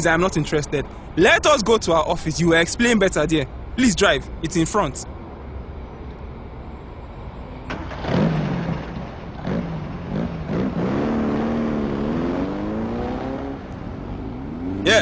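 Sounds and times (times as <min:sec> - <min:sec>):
car engine revving: 0:07.7 - 0:15.0.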